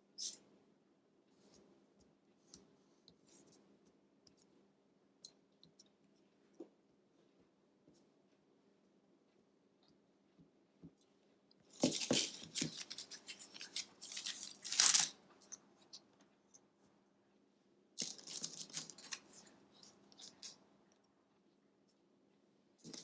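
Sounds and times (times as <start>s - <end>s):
wooden sticks clattering and scraping: 11.7s - 15.1s, 18.0s - 19.3s.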